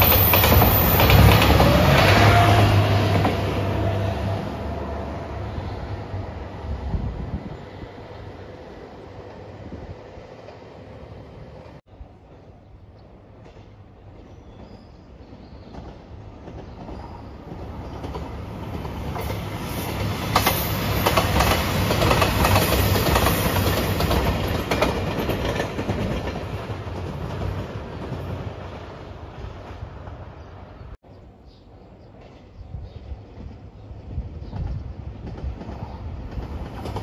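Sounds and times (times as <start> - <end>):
wheels clacking over rail joints: 0.0 - 2.4, 15.6 - 28.5
diesel train engines rumbling: 0.0 - 14.4.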